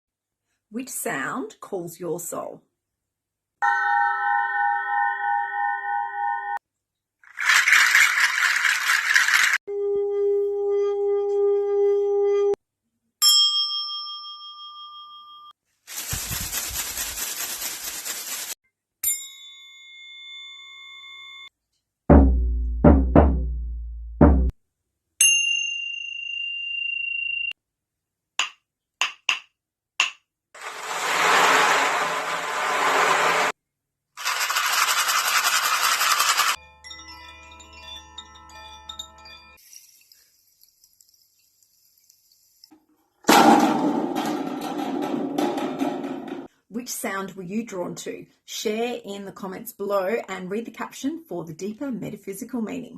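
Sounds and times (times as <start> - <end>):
singing bowl ringing: 3.6 - 6.6, 19.1 - 21.5
leaf rattle shaken: 7.2 - 9.6, 15.8 - 18.6, 34.2 - 36.6, 39.6 - 42.7
tuning fork ringing: 13.2 - 15.6, 19.1 - 21.5, 25.2 - 27.5
meditation bell ringing: 19.1 - 21.5
frame drum booms: 22.1 - 24.5, 43.3 - 46.5.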